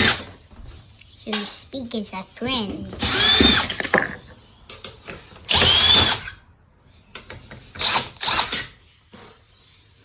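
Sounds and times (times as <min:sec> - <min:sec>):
electric screwdriver whirring: 0:03.0 - 0:03.9, 0:05.4 - 0:06.4, 0:07.7 - 0:08.8.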